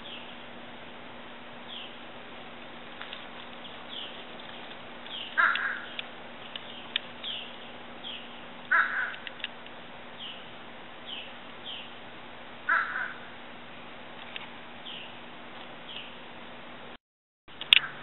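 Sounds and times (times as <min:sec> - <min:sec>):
loud short bird calls: 0:03.6 - 0:09.4, 0:12.7 - 0:13.4.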